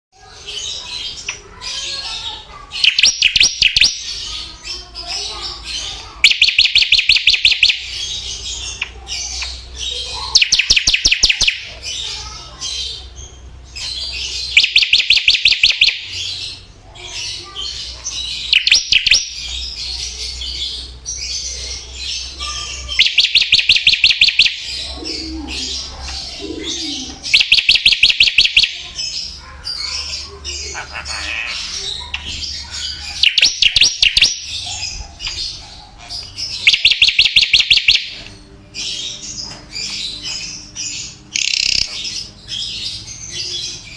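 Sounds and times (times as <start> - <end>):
soft bird chattering: 0.2 - 43.9
songbird trilling: 0.2 - 43.9.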